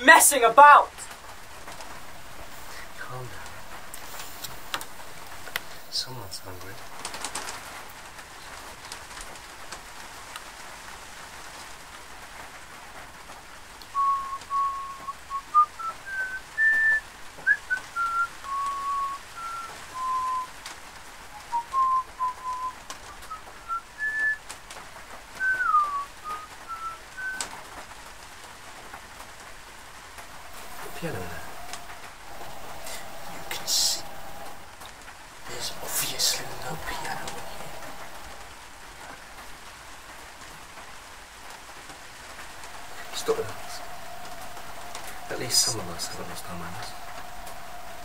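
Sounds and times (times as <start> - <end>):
steady hiss: 0.0 - 48.0
person whistling a slow tune: 14.0 - 20.6, 21.4 - 24.4, 25.4 - 27.4.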